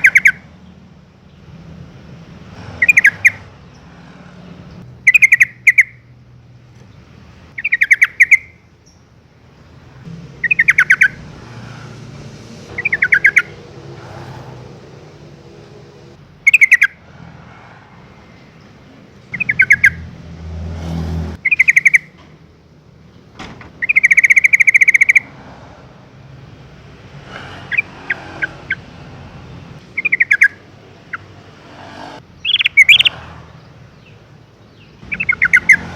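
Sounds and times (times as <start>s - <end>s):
bird chattering call: 0.0s - 0.4s, 2.8s - 3.9s, 5.0s - 6.0s, 7.6s - 9.0s, 10.4s - 11.2s, 12.7s - 13.6s, 16.4s - 17.0s, 19.3s - 20.1s, 21.4s - 22.2s, 23.8s - 25.3s, 30.0s - 31.3s, 32.4s - 33.2s, 34.8s - 35.9s.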